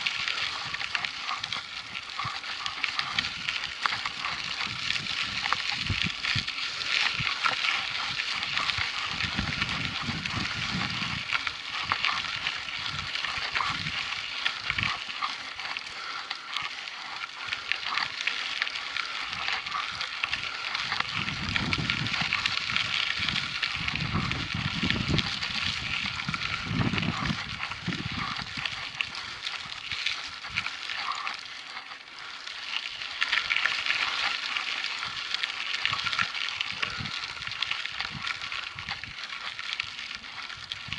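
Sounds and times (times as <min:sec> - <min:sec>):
wind buffeting microphone: 0:00.0 - 0:16.8, 0:19.0 - 0:31.0, 0:35.0 - 0:40.9
bike tyres crunching on dirt: 0:00.0 - 0:40.9.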